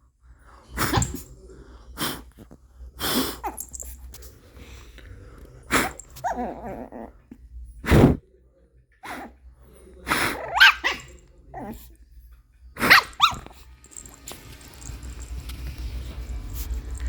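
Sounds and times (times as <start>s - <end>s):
small dog barking: 10.2s - 11.8s, 12.8s - 13.7s.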